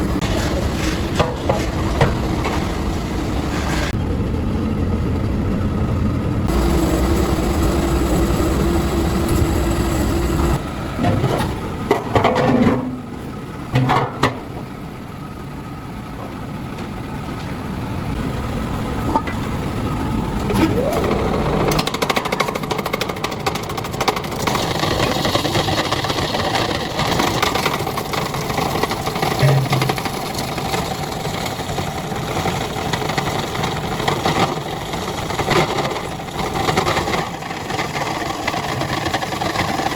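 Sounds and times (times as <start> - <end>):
motor humming: 6.2 - 10.9, 18.2 - 22.0
fast continuous rattle: 21.6 - 39.9.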